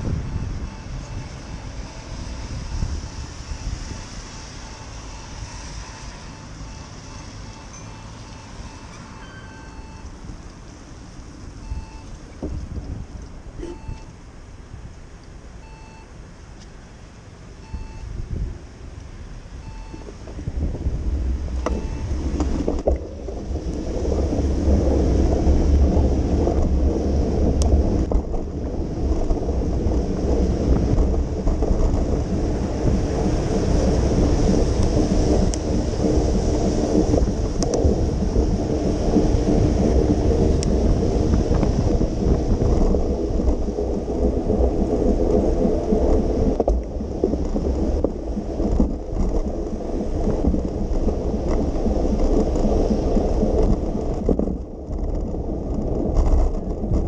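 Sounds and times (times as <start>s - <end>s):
tyres hissing on wet pavement: 0.0s - 15.5s
wind rumbling on microphone: 0.0s - 57.0s.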